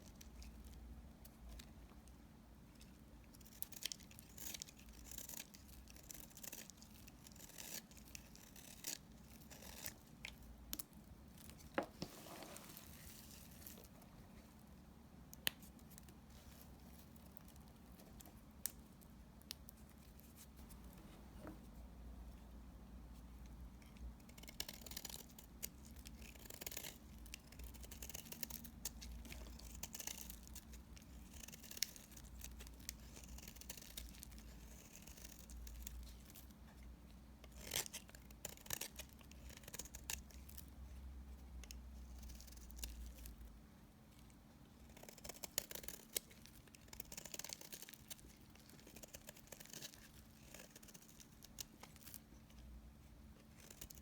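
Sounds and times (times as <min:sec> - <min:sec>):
soap being sliced and crumbling: 0:03.3 - 0:13.9, 0:24.2 - 0:36.6, 0:37.5 - 0:40.7, 0:44.9 - 0:52.7, 0:53.4 - 0:54.0.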